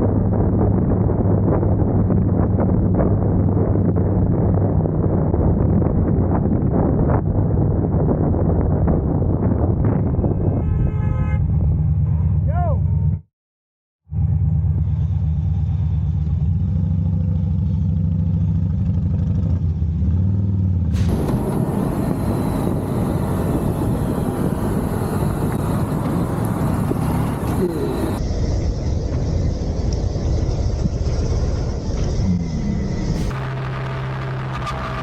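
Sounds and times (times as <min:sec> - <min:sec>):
wind and road noise: 0:00.0 - 0:13.2, 0:14.1 - 0:35.0
motorcycle engine running: 0:14.1 - 0:28.2.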